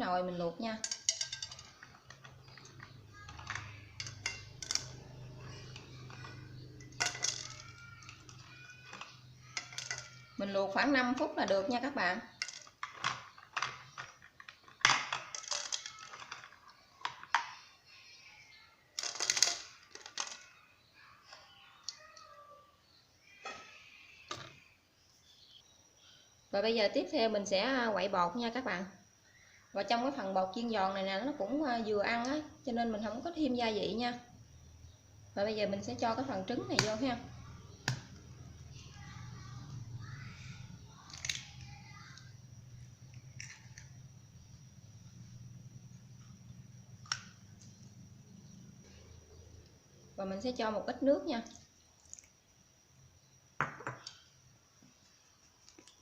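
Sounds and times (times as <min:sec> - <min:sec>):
kitchenware clattering: 0:00.8 - 0:10.3
egg cracking clicks: 0:40.9 - 0:42.3, 0:51.4 - 0:52.4, 0:55.5 - 0:56.0.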